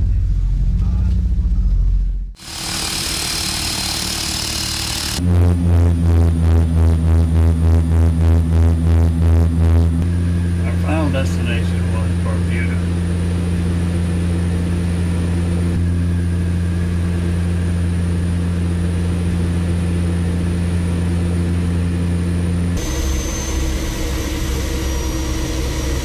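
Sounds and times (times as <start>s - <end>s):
aircraft engines droning: 2.4s - 5.2s, 10.0s - 26.0s.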